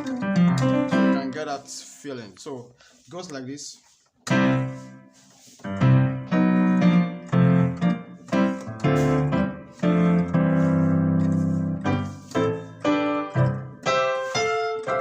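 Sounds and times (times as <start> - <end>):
piano and organ chords: 0.0 - 1.9, 4.2 - 15.0.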